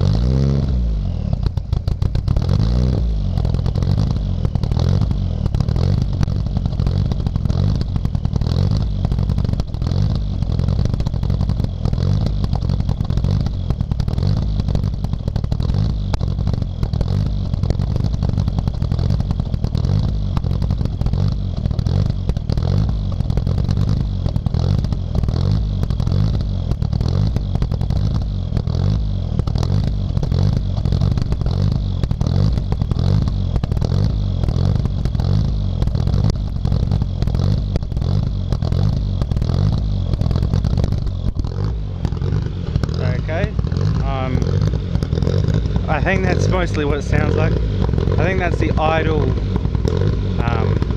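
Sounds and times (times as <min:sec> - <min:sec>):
car engine idling lumpily: 0:00.0 - 0:50.9.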